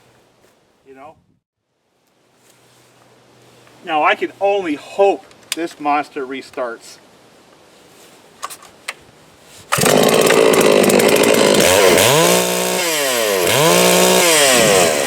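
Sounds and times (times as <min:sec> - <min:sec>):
chainsaw revving: 0:09.7 - 0:15.0.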